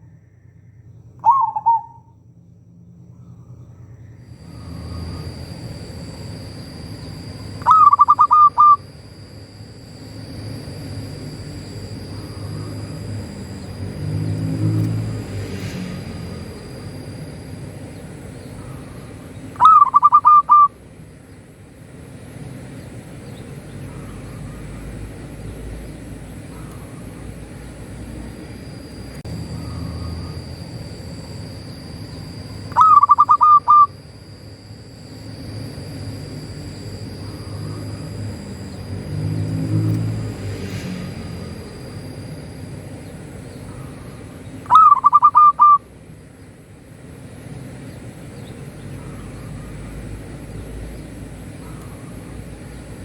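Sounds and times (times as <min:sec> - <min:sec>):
high-pitched whine: 0:00.0 - 0:53.0
dove cooing: 0:01.2 - 0:02.1, 0:04.4 - 0:09.0, 0:18.2 - 0:20.8, 0:29.4 - 0:34.1, 0:43.6 - 0:45.9.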